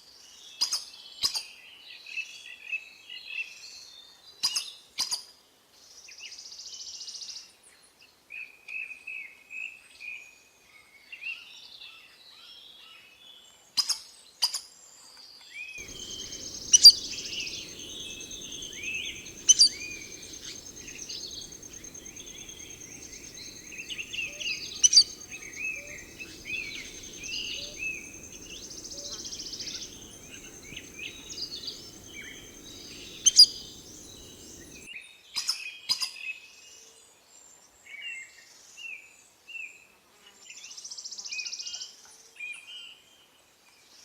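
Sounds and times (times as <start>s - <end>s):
birds calling and chirping: 15.8s - 34.9s.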